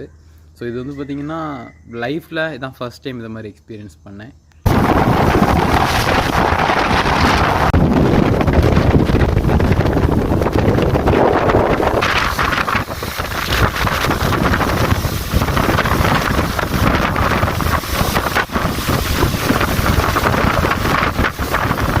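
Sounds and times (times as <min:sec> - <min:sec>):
heavy wind buffeting microphone: 0:04.6 - 0:22.0.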